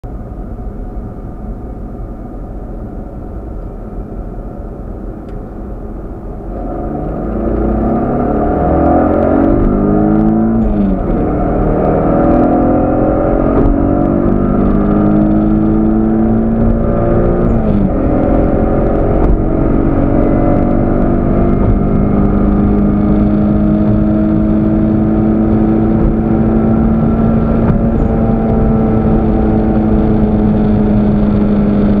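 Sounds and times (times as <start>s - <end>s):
car engine accelerating hard: 5.2s - 32.0s.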